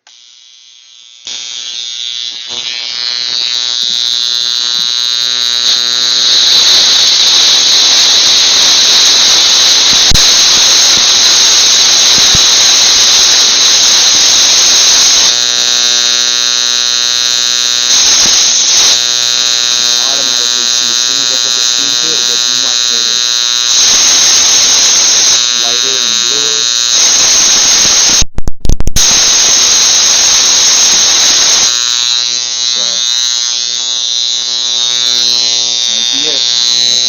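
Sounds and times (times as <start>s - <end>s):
electrical spark buzzing: 0.0s - 37.0s
sharp clicks: 28.2s - 29.1s.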